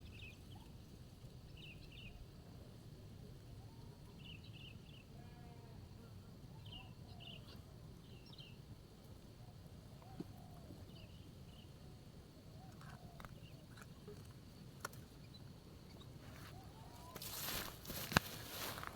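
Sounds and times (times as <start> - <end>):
soft lower bird calls: 9.3 - 18.9.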